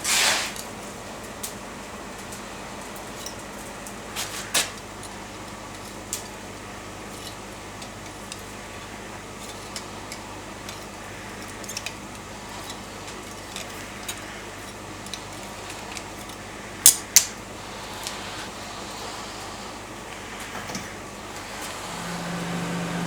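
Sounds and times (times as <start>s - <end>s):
low workshop hum: 0.0s - 23.0s
metal tools clinking: 3.0s - 6.4s, 7.1s - 19.2s.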